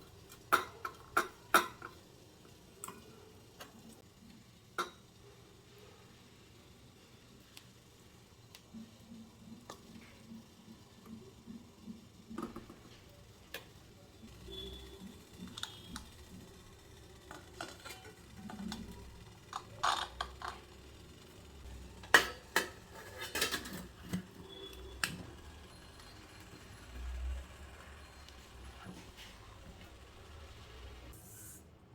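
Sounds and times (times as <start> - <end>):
dishes and utensils clinking: 22.0 - 25.2.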